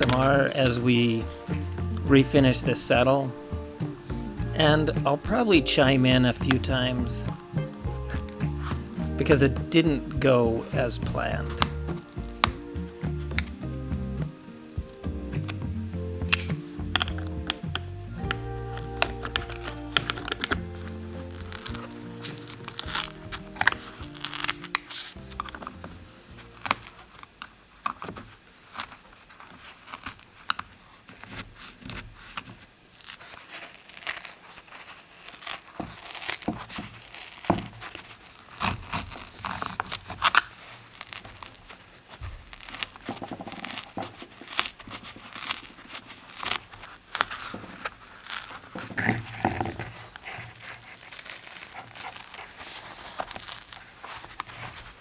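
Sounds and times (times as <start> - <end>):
sharp clicks and taps: 0.0 - 26.0
rustling: 0.0 - 55.0.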